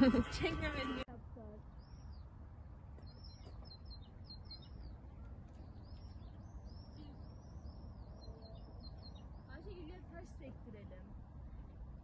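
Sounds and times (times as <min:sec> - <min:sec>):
small bird chirping: 0:03.0 - 0:10.3.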